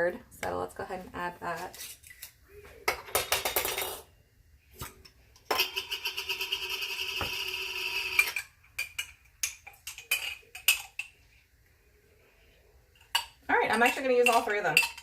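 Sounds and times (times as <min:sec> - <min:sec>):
spoon scraping glass jar: 0:05.5 - 0:08.5.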